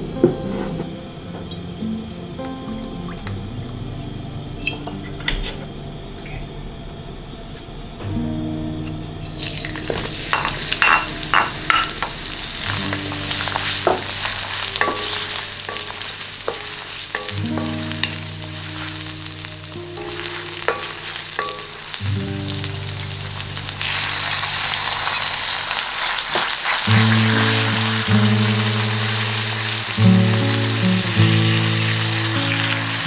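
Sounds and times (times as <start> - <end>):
soft background music: 0.0 - 26.1, 26.8 - 33.0
garlic and onion sizzling in oil: 9.3 - 33.0
spatula tapping and scraping pan: 12.7 - 18.9, 20.0 - 22.0.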